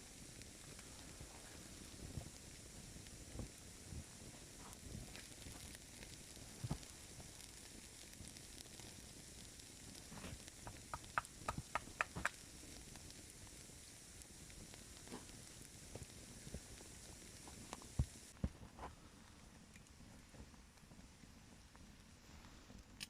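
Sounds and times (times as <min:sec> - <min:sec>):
faint steady hiss: 0:00.0 - 0:23.0
sharp crackling clicks: 0:04.7 - 0:13.6.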